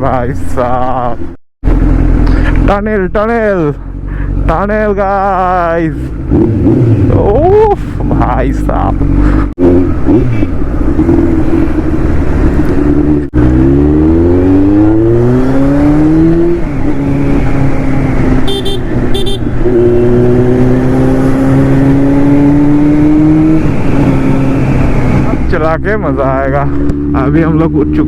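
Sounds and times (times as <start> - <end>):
motorcycle engine accelerating: 0.0 - 28.0
short horn beeps: 18.4 - 19.5.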